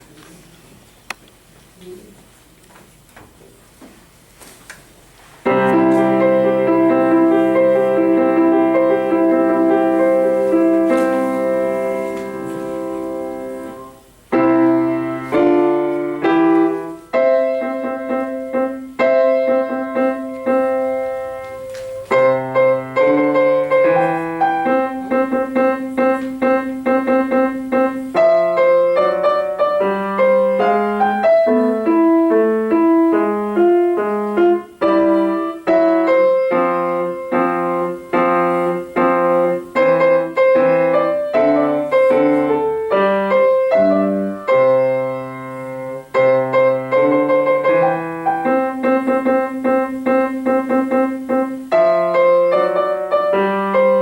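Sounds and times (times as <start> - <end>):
piano playing chords: 5.4 - 54.0.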